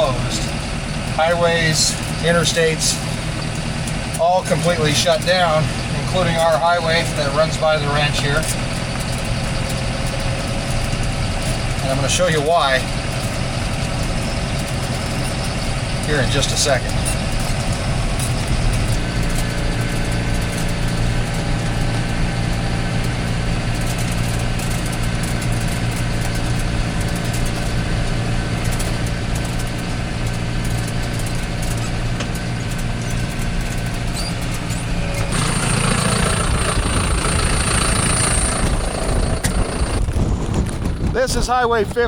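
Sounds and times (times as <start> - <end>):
vehicle engine running: 0.0 - 42.0
wind noise hiss: 36.3 - 42.0.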